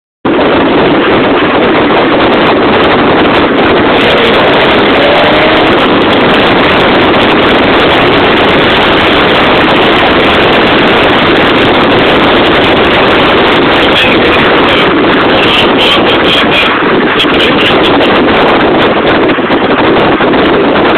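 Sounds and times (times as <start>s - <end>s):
wind buffeting microphone: 0.2s - 20.9s
car engine running: 3.4s - 18.2s.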